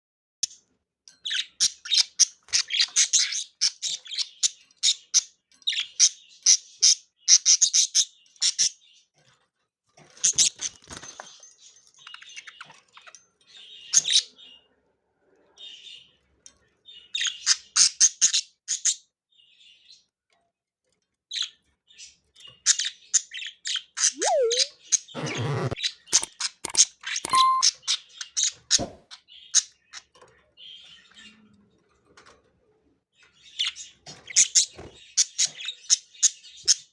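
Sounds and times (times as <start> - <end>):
budgerigars chirping: 24.2 - 26.3.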